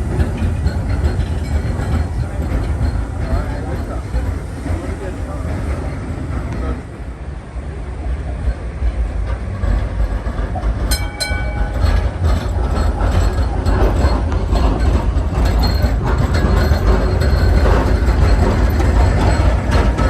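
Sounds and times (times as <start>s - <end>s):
tram bell ringing tones: 0.0s - 5.6s, 10.8s - 20.0s
tram rumble: 0.0s - 20.0s.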